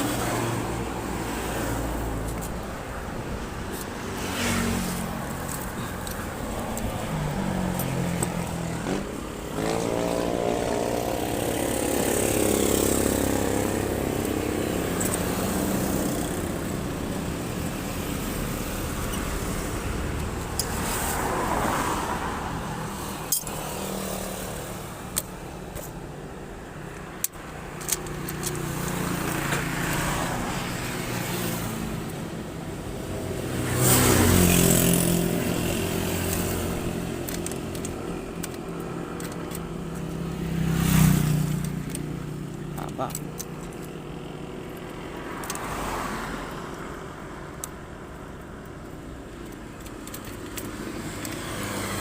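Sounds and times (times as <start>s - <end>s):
road and wind noise: 0.0s - 52.0s.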